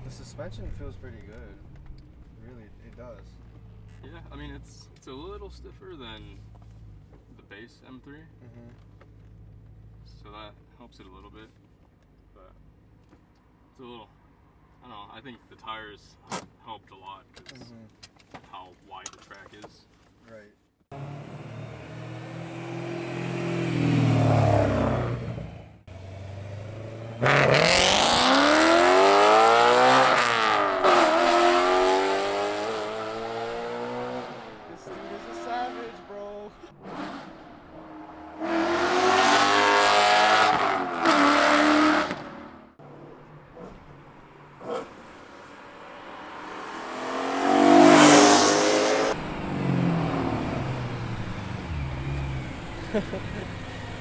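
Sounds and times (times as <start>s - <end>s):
car engine revving: 20.9s - 54.0s.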